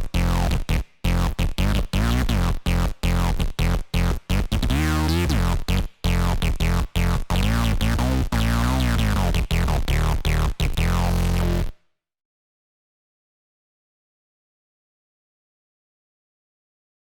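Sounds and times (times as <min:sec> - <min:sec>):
synthesizer sequence with deep bass: 0:00.0 - 0:11.7.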